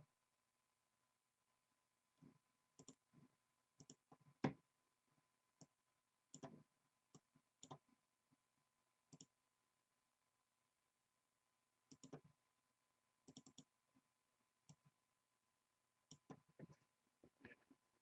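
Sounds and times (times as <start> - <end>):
mouse and keyboard clicks: 2.8 - 3.0, 6.3 - 6.6, 7.2 - 7.8, 11.9 - 12.2, 13.3 - 13.7, 16.1 - 16.8.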